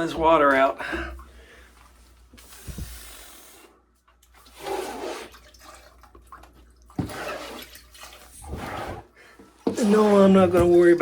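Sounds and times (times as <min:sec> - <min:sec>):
squeegee swishing water: 0:04.2 - 0:11.0.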